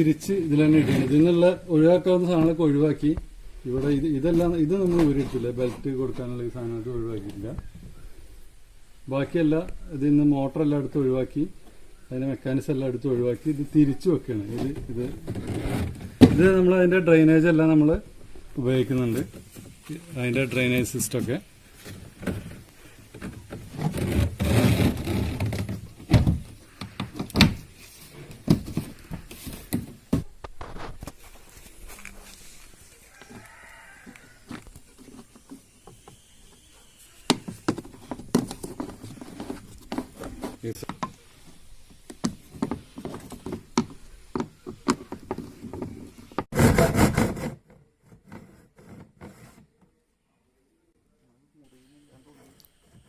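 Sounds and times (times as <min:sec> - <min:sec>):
plastic scraping and rustling: 0:00.1 - 0:02.6, 0:03.7 - 0:07.6, 0:14.3 - 0:16.8, 0:18.3 - 0:49.9
hard plastic knocks and thuds: 0:22.2 - 0:27.7
plastic parts knocking: 0:37.3 - 0:41.2, 0:42.1 - 0:46.2.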